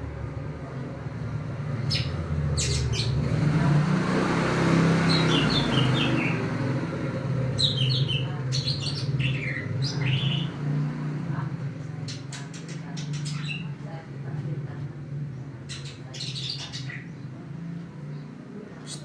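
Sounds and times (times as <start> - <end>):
bird chirping: 1.8 - 3.3, 5.0 - 6.6, 7.5 - 10.6, 12.0 - 13.8, 15.7 - 17.3.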